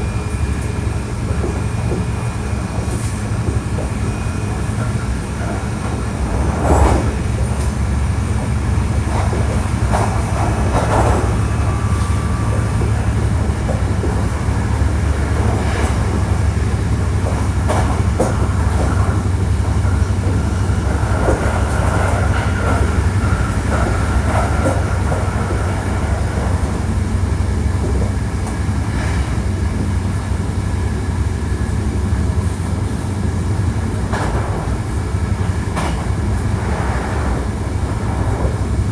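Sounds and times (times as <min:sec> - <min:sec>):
train wheels rumbling on rails: 0:00.0 - 0:38.9
clacks over rail joints: 0:00.6 - 0:38.9
faint high squeal: 0:10.6 - 0:13.5.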